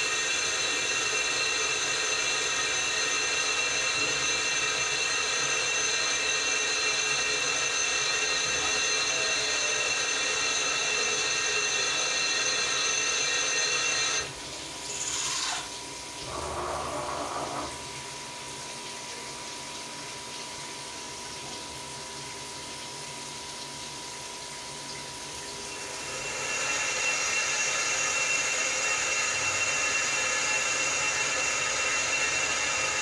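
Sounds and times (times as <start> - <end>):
milling machine spindle whine: 0.0 - 18.3, 25.4 - 33.0.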